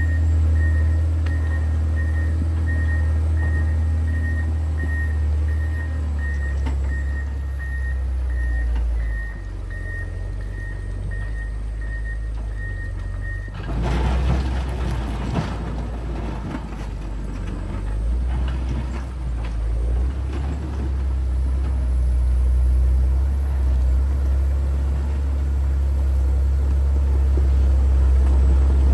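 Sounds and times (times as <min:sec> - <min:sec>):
reversing alarm beeping: 0:00.0 - 0:13.7
diesel engine running: 0:00.0 - 0:28.9
rough machine working noise: 0:13.5 - 0:28.9.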